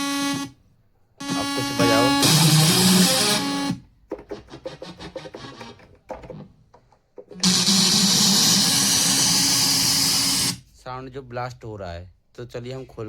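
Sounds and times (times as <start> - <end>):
harsh noise blast from speaker: 1.2 - 3.5
keyboard notes: 1.2 - 3.7.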